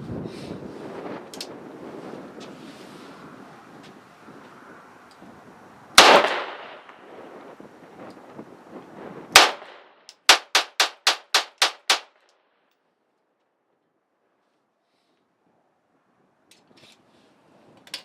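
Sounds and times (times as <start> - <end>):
wind noise on microphone: 0.0 - 12.1, 16.1 - 18.0
gunshots with echo: 6.0 - 6.9, 9.4 - 12.1.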